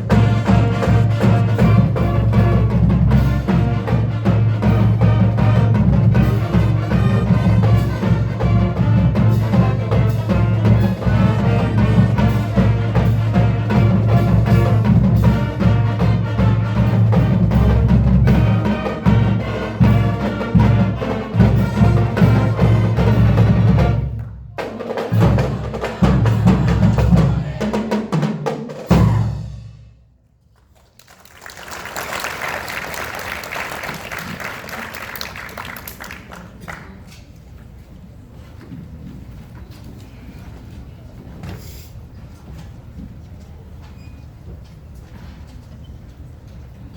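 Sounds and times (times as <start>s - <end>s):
marching band with drums: 0.0s - 30.0s
applause: 30.5s - 37.3s.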